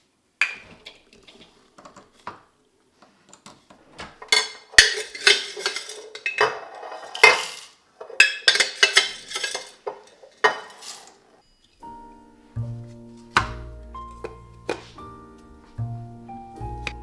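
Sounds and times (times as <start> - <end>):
metal spoon clinking on dishware: 4.3 - 11.2.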